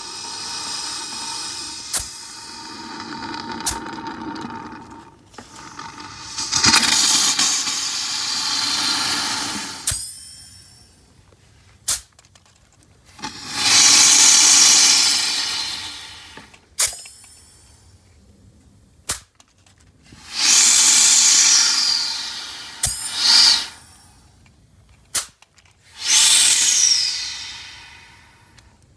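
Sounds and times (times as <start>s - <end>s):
gas hissing through piping: 0.0s - 11.0s, 13.1s - 17.8s, 20.2s - 24.2s, 25.9s - 28.8s
sharp pops: 20.3s - 24.0s, 25.1s - 28.7s.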